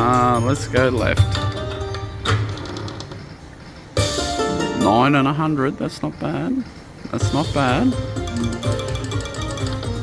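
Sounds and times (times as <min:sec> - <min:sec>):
slot machine electronic music: 0:07.2 - 0:10.0.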